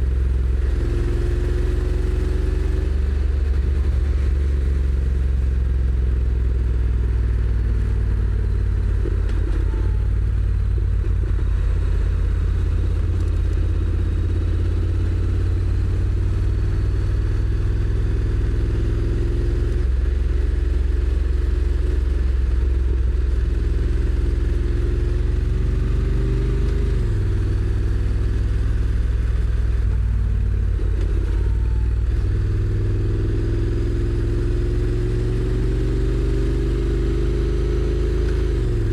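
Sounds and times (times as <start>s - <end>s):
motorcycle engine rumbling: 0.0s - 18.5s, 27.1s - 35.2s, 38.1s - 38.9s.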